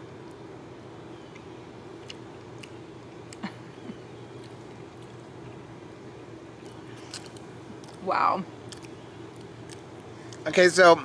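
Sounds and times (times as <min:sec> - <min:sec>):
steady low hum: 0:00.0 - 0:11.0
faint chewing: 0:01.2 - 0:05.7, 0:06.5 - 0:08.0, 0:08.6 - 0:10.5.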